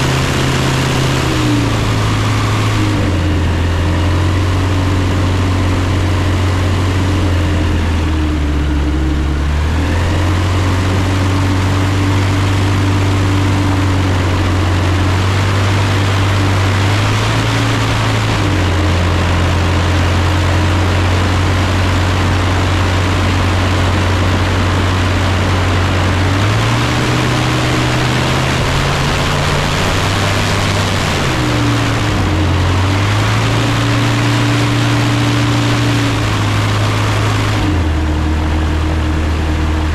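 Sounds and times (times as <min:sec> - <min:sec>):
propeller engine running: 0:00.0 - 0:39.9.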